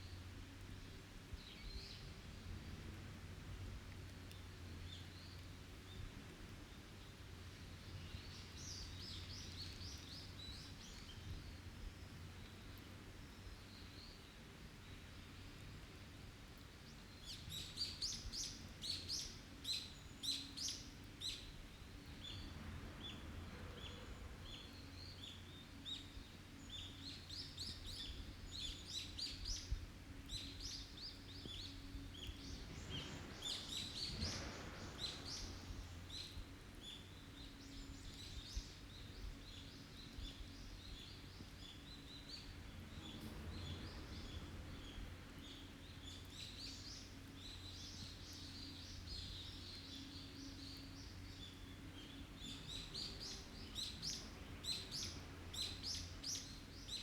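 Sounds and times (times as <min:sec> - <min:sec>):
faint low background hum: 0:00.0 - 0:57.0
forest songbirds chirping: 0:00.0 - 0:57.0.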